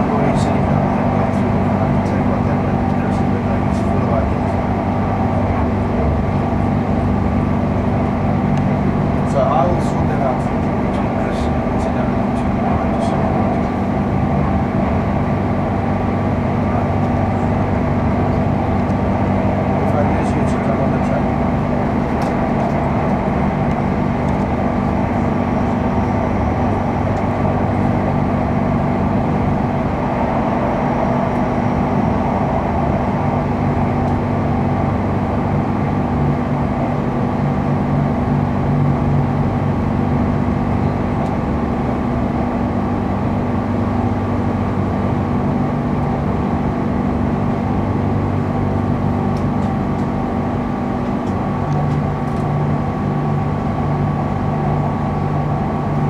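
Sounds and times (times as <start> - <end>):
constant low hum: 0.0 - 56.0
wheels rumbling on rail: 0.0 - 56.0.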